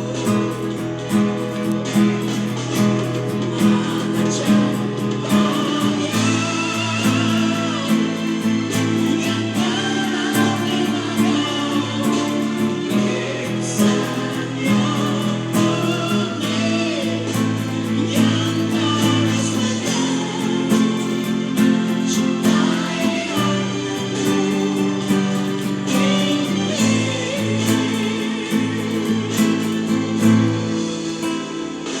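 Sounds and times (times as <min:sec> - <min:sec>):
nylon-string guitar playing: 0:00.0 - 0:32.0
person singing: 0:00.0 - 0:32.0.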